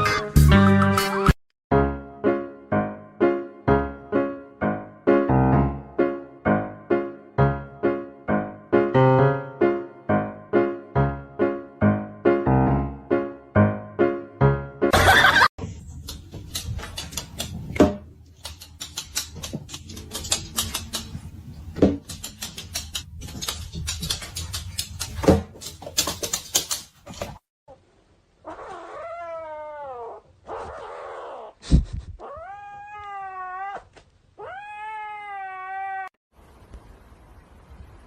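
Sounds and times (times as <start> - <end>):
clicks knocks and rustling: 16.0 - 27.4
cat yowling: 28.4 - 31.6, 32.2 - 36.1.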